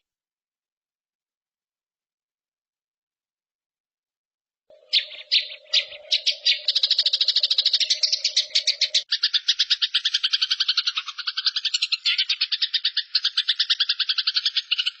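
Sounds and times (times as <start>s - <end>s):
bird chirps: 4.7s - 15.0s
fast bird trill: 4.7s - 15.0s.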